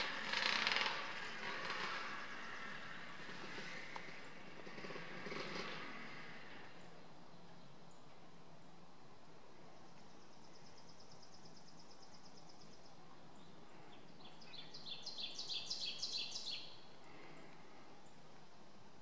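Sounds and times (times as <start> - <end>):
background hiss: 0.0 - 19.0
songbirds singing: 9.6 - 18.3.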